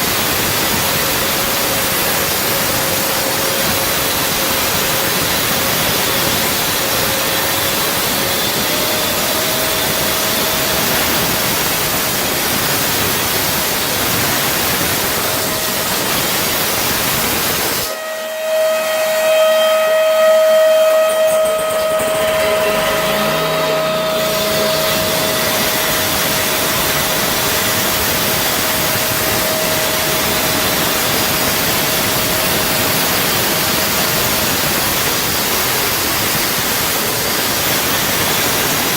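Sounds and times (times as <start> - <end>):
electric cutting tool running: 0.0 - 20.0, 20.8 - 38.9.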